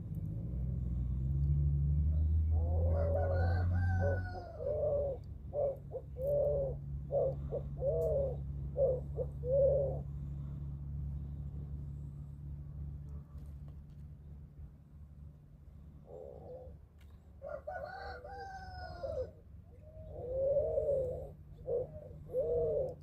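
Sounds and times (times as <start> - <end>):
low hum: 0.0 - 17.4
rooster crowing: 2.6 - 5.0, 17.4 - 19.4
short rooster calls: 2.8 - 4.7, 17.5 - 19.4.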